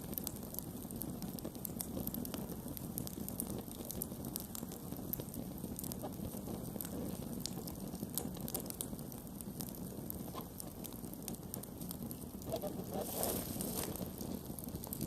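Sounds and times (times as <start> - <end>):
campfire flame rumble: 0.0 - 15.0
fire crackles and pops: 0.0 - 15.0
fire hiss: 9.8 - 15.0.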